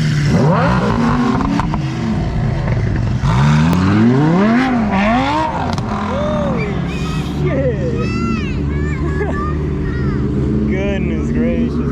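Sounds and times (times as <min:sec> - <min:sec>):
sports car engine revving: 0:00.0 - 0:08.0.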